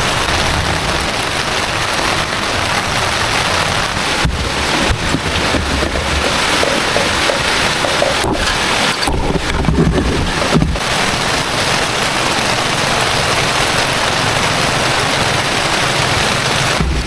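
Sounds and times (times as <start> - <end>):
heavy rain pouring: 0.0 - 17.0
dull knocks: 4.2 - 10.9, 16.8 - 17.0.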